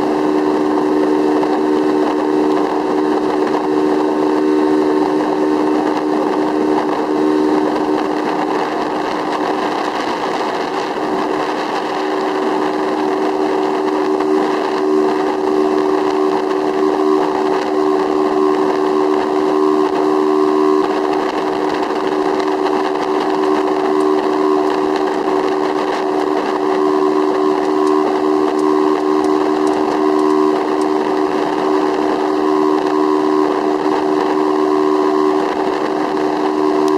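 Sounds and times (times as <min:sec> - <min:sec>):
speedboat engine drone: 0:00.0 - 0:36.9
water rushing noise: 0:00.0 - 0:36.9.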